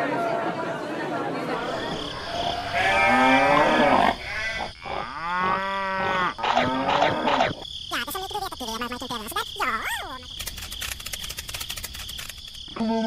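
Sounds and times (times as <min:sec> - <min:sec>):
livestock calls: 0:01.6 - 0:07.6.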